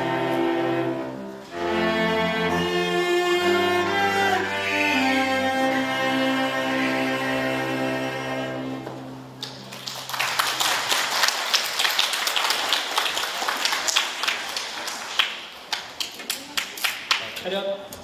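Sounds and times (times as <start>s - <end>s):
string ensemble chord: 0.0s - 9.5s
audience applauding: 9.4s - 17.4s.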